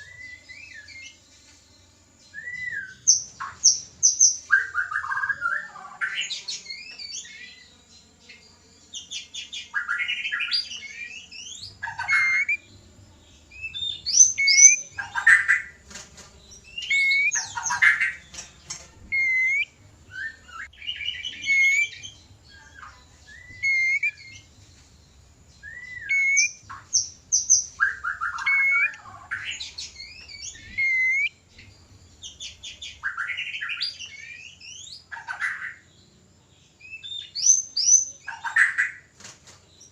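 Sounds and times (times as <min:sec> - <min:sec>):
bird singing whistles: 0:02.3 - 0:07.4, 0:09.0 - 0:12.6, 0:13.6 - 0:15.7, 0:16.6 - 0:18.2, 0:19.1 - 0:22.2, 0:23.2 - 0:24.5, 0:25.6 - 0:31.4, 0:36.8 - 0:39.0.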